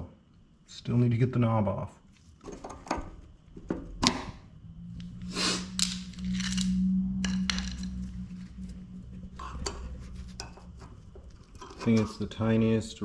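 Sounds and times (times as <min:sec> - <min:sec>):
short scraping noises: 0:05.1 - 0:08.6.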